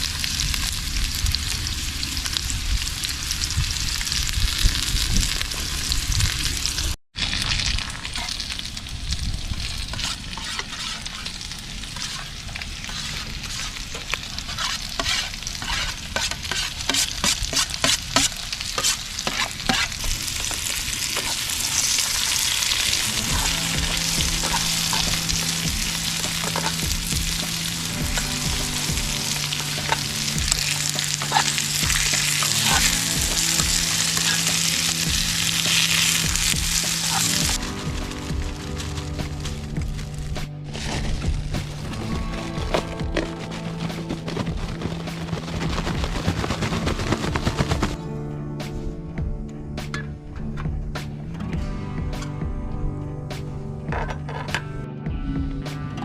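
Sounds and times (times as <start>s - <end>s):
food sizzling in a pan: 0.0s - 40.2s
background music: 21.4s - 56.0s.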